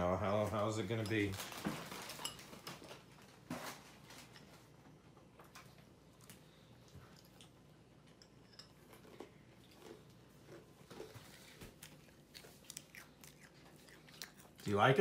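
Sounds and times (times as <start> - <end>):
faint chewing: 5.4 - 15.0.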